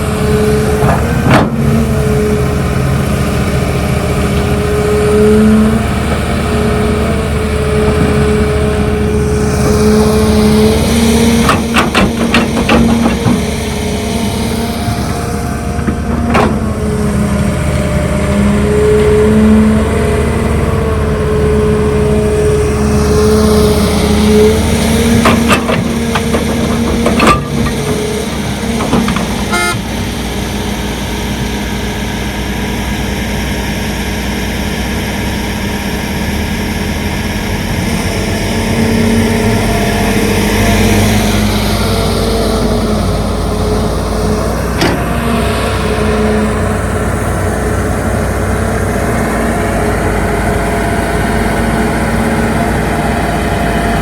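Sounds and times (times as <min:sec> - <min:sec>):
diesel machinery running: 0:00.0 - 0:54.0
sharp knocks: 0:11.4 - 0:13.6, 0:25.0 - 0:29.8.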